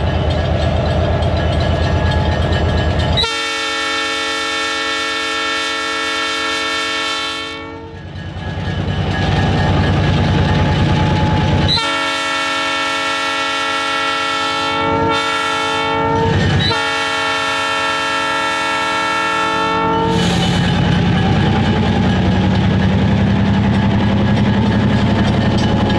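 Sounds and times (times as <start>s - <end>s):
locomotive air horn blasts: 3.2s - 8.0s, 11.6s - 20.8s.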